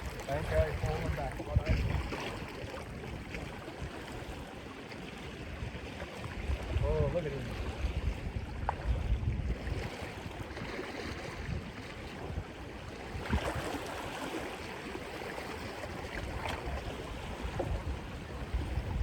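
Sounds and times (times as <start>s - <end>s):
wind buffeting microphone: 0.0s - 4.6s, 5.2s - 19.0s
sea water washing on rocks: 0.0s - 5.7s, 9.8s - 19.0s.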